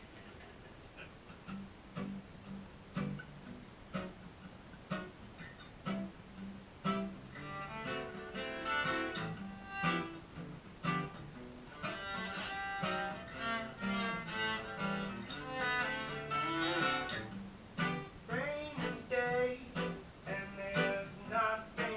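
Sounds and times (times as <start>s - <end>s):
acoustic guitar strumming: 1.0s - 21.9s
fiddle melody: 6.9s - 19.4s.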